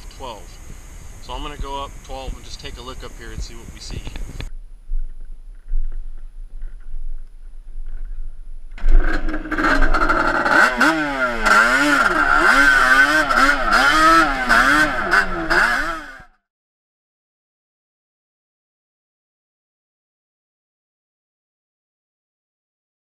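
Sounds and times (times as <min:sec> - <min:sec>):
two-stroke quad engine revving: 0:08.8 - 0:16.4.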